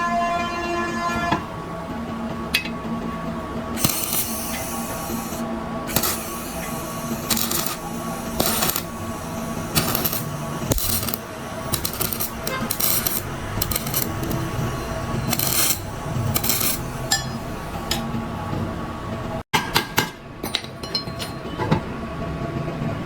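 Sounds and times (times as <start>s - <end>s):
short hissing bursts: 3.8s - 14.4s
metal parts clinking and scraping: 3.8s - 17.4s.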